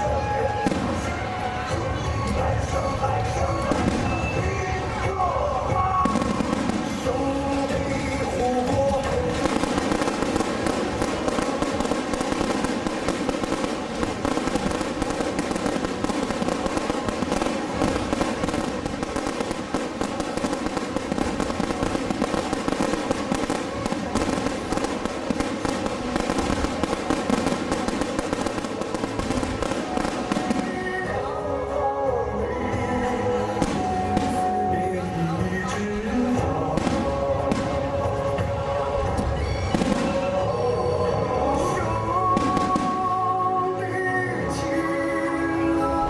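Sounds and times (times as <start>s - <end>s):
fireworks crackling bangs: 0.0s - 46.0s
music: 0.0s - 46.0s.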